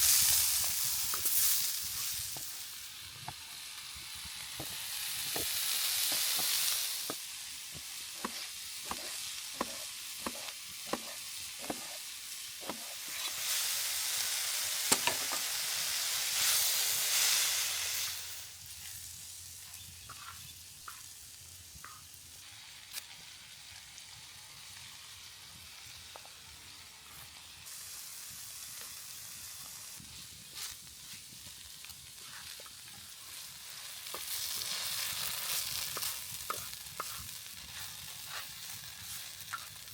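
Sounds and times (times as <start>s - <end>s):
food sizzling in a skillet: 0.0s - 39.9s.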